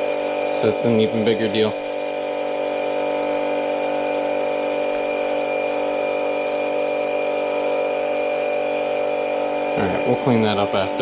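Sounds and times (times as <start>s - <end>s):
electric pump humming: 0.0s - 11.0s.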